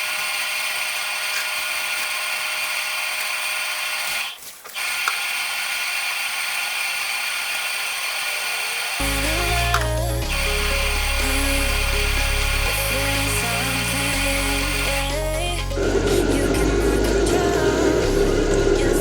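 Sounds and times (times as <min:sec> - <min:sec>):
washing machine whirring: 0:00.0 - 0:19.0.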